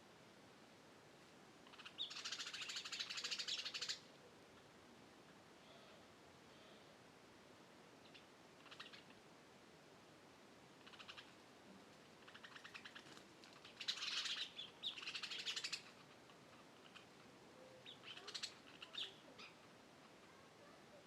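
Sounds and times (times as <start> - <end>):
birds trilling chirps: 1.6 - 4.1, 8.0 - 9.2, 10.8 - 11.4, 12.2 - 19.7.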